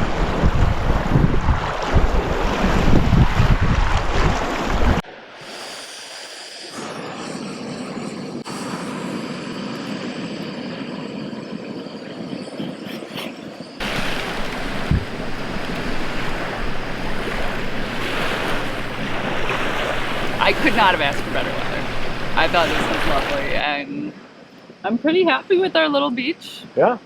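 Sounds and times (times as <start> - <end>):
wind buffeting microphone: 0.0 - 5.0, 9.3 - 23.6
lake waves washing on shore: 0.0 - 12.8, 13.7 - 23.7.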